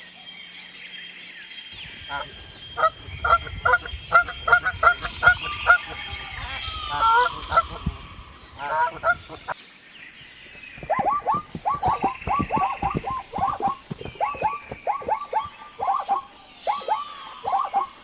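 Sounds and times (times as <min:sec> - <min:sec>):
bird honking calls: 0:10.5 - 0:18.0.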